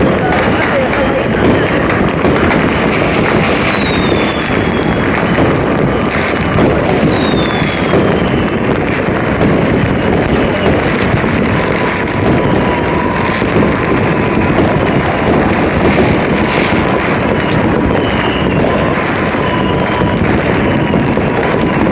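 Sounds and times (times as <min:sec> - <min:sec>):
fireworks and firecrackers crackling: 0:00.0 - 0:21.9
falling whistle: 0:03.0 - 0:08.7, 0:16.0 - 0:21.9.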